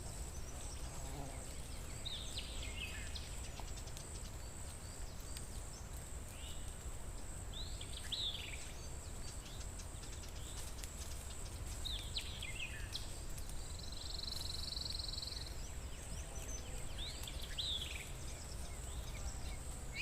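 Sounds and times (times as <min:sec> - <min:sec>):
songbirds calling: 0:00.0 - 0:20.0.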